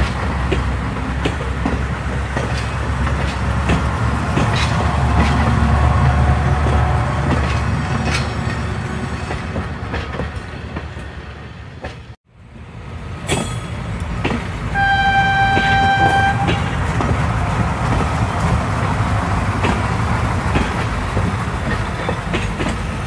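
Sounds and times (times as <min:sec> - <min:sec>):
train wheels clicking on rails: 0:00.0 - 0:12.2, 0:12.8 - 0:23.0
train horn: 0:14.7 - 0:16.8.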